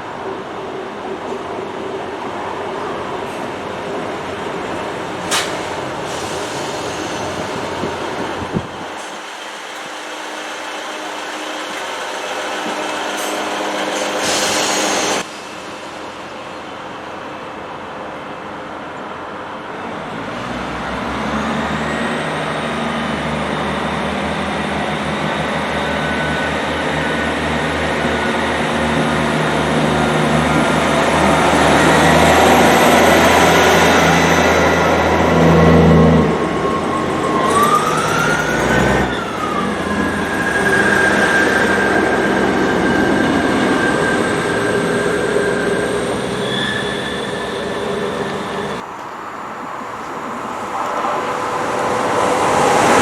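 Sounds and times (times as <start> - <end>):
train hum and whine: 0.0 - 53.0
loud hiss: 5.1 - 17.3.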